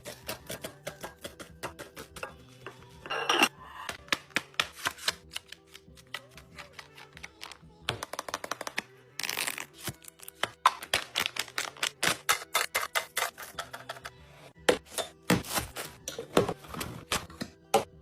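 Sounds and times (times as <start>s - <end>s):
kitchen items clicking and tapping: 0.0s - 3.5s.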